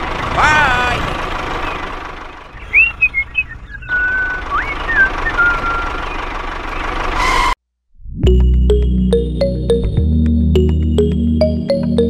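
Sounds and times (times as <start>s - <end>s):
toy tractor engine rumble: 0.0s - 7.6s
short whistled notes: 2.7s - 6.2s.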